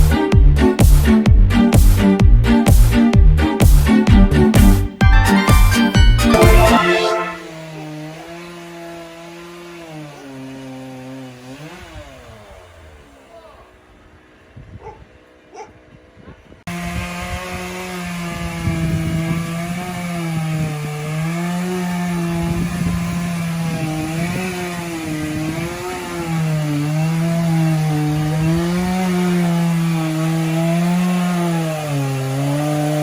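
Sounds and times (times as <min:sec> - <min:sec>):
chainsaw cutting logs: 0:05.8 - 0:13.4, 0:16.7 - 0:33.0.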